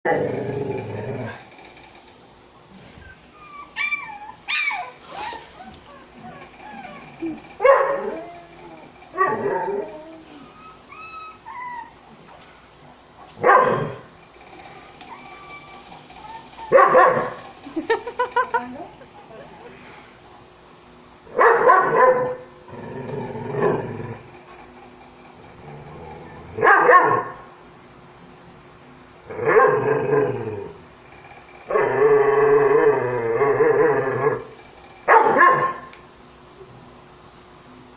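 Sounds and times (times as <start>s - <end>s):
dog whining: 2.9s - 12.4s, 13.6s - 17.6s, 25.5s - 27.4s
dog barking: 7.6s - 8.1s, 13.4s - 13.9s, 16.7s - 17.4s, 21.3s - 22.4s, 26.6s - 27.4s, 35.1s - 35.9s.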